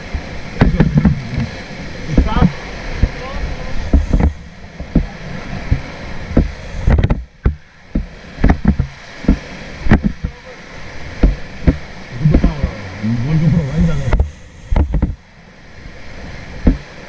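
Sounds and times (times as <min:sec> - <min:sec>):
sharp splashes and knocks: 0:00.0 - 0:15.3, 0:16.5 - 0:17.0
river water rushing: 0:00.0 - 0:17.0.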